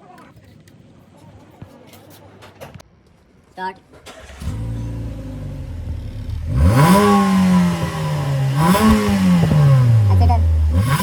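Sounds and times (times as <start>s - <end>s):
car engine idling and revving: 4.1s - 11.0s.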